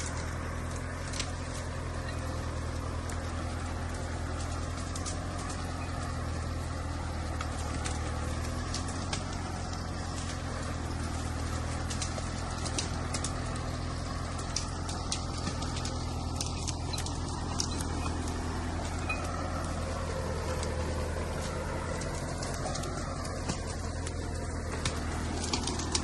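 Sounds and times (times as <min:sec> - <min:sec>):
tractor engine humming: 0:00.0 - 0:26.0
sharp clicks and knocks: 0:07.2 - 0:26.0.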